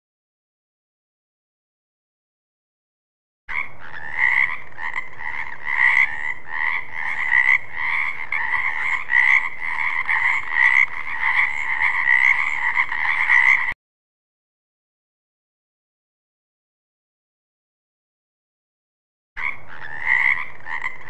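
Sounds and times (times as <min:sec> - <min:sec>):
frogs croaking: 0:03.5 - 0:13.8, 0:19.4 - 0:21.0.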